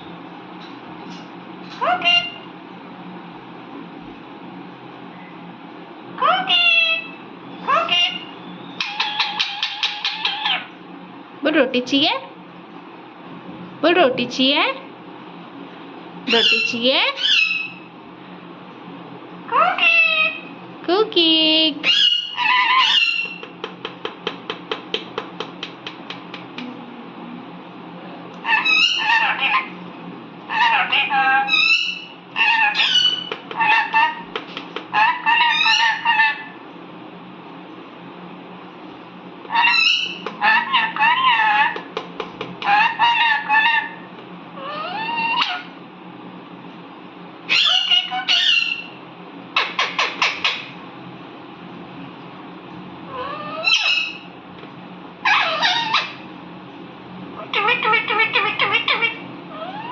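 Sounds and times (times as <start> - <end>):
parrot call: 6.2 - 10.7, 16.3 - 17.9, 19.5 - 20.5, 21.8 - 23.5, 28.4 - 29.8, 30.5 - 34.3, 34.9 - 36.6, 39.5 - 41.9, 42.6 - 45.8, 47.5 - 49.0, 53.1 - 54.3, 55.2 - 56.2, 57.4 - 59.9.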